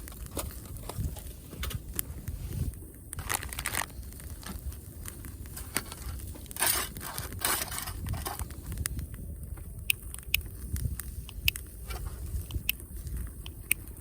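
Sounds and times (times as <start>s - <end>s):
steady low rumble: 0.0s - 14.0s
crinkling tearing handling noise: 3.1s - 8.9s.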